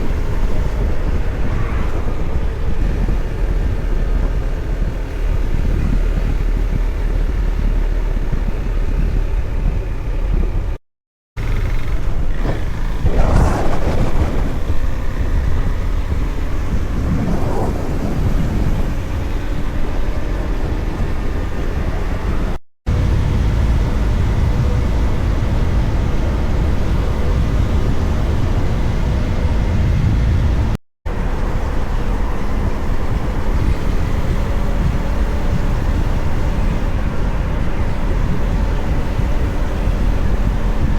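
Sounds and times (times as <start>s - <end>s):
passing traffic: 0.0s - 10.8s, 11.4s - 40.9s
wind rumble on microphone: 0.0s - 10.8s, 11.4s - 40.9s
motorcycle engine running: 14.2s - 40.9s.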